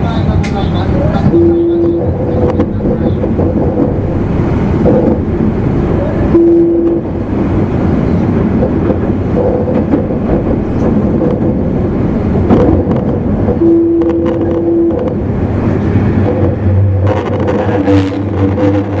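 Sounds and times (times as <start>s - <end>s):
train wheels rumbling: 0.0s - 19.0s
brief steady tone: 1.3s - 2.0s, 6.3s - 7.0s, 13.6s - 15.0s.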